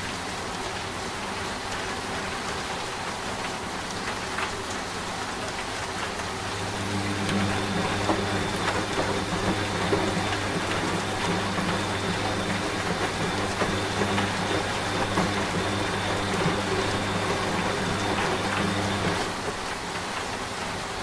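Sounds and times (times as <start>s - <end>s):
rain pattering: 0.0s - 21.0s
washing machine motor hum: 6.2s - 20.4s.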